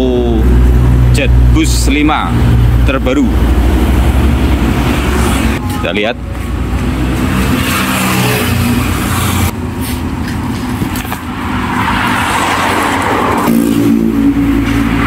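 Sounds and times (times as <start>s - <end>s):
noisy rush: 0.0s - 15.0s
motor vehicle engine running: 8.6s - 11.9s.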